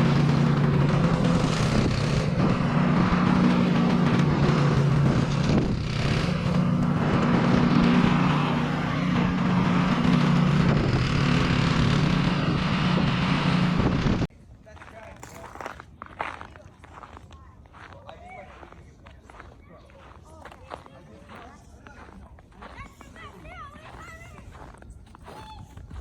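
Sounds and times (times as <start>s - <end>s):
snowblower engine running: 0.0s - 14.3s.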